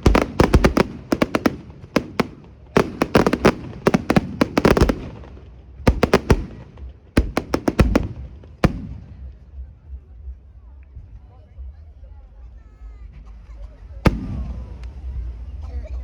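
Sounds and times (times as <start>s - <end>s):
fireworks bangs and cracks: 0.0s - 9.4s, 14.1s - 15.0s.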